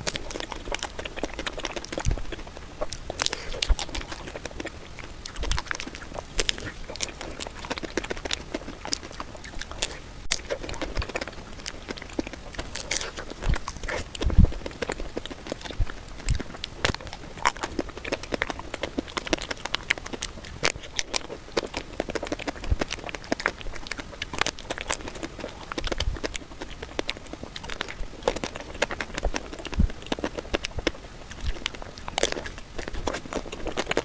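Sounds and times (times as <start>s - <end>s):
person eating ice cream: 0.0s - 34.0s.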